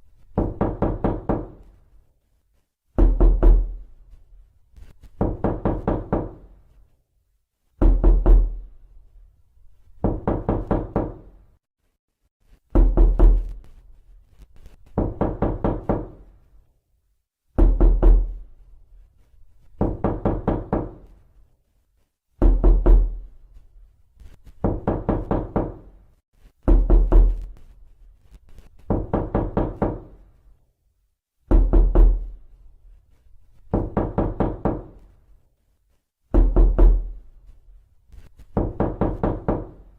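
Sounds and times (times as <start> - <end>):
knocking on a door: 0.3 - 1.7, 3.0 - 3.8, 5.2 - 6.6, 7.8 - 8.6, 10.0 - 11.4, 12.7 - 13.5, 14.9 - 16.3, 17.6 - 18.4, 19.8 - 21.2, 22.4 - 23.2, 24.6 - 25.9, 26.6 - 27.5, 28.8 - 30.2, 31.5 - 32.4, 33.7 - 35.1, 36.3 - 37.2, 38.5 - 39.8.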